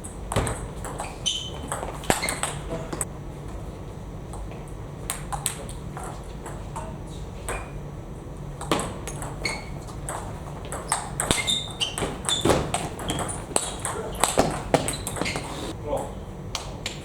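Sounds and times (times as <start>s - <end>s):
short high squeaks: 1.0s - 2.6s, 9.4s - 9.8s, 10.8s - 13.8s, 14.9s - 15.7s
table tennis ball clicking: 8.6s - 15.4s.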